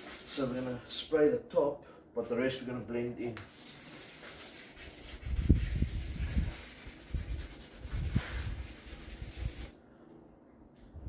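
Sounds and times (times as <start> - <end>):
sandpaper rubbing over paint: 0.0 - 0.8, 3.5 - 9.8.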